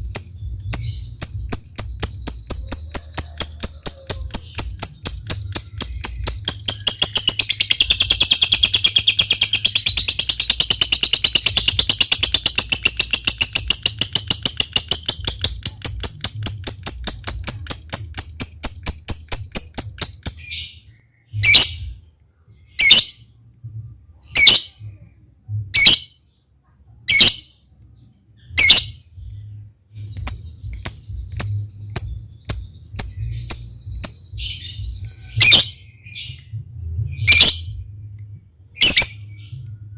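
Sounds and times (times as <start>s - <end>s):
bird ticking notes: 0.0s - 20.6s, 30.1s - 35.6s
lovebird chattering trill: 0.0s - 20.7s, 28.6s - 29.0s, 30.1s - 35.9s, 37.2s - 37.8s, 38.8s - 39.6s.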